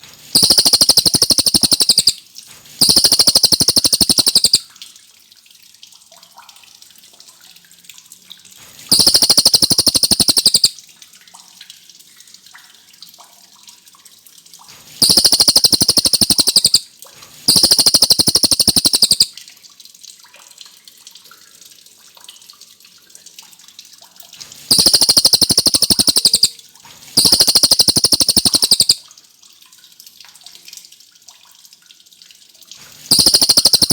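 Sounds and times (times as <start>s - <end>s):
songbird singing fast trills: 0.4s - 2.2s, 2.8s - 4.6s, 8.9s - 10.7s, 15.0s - 16.8s, 17.5s - 19.3s, 24.7s - 26.6s, 27.2s - 29.0s, 33.1s - 33.9s.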